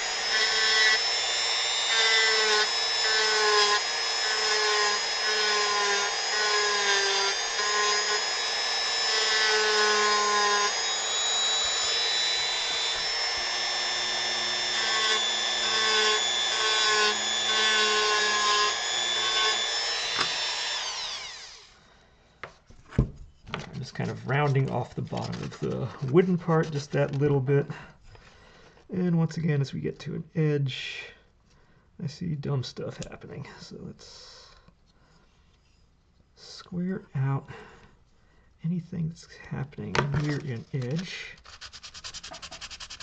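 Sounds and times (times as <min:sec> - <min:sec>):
rotary tool shaping wood: 0:00.0 - 0:21.8, 0:40.1 - 0:43.0.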